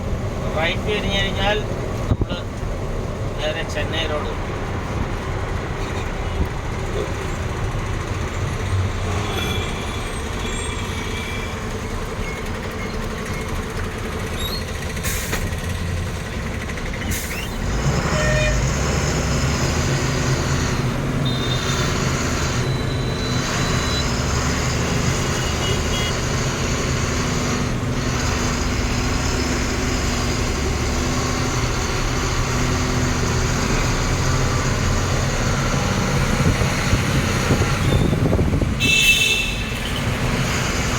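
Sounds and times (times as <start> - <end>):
road noise: 0.0 - 40.9
truck engine: 0.0 - 40.9.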